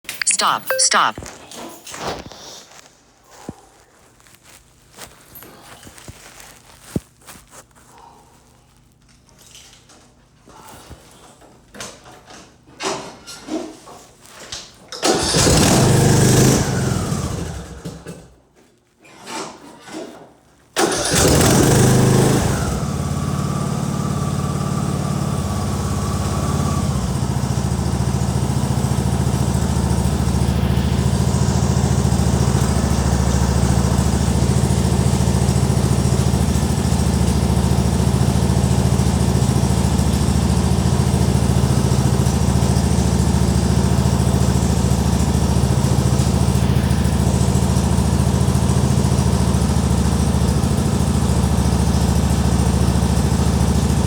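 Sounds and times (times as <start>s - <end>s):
tractor engine idling: 15.0s - 17.8s, 20.8s - 54.0s.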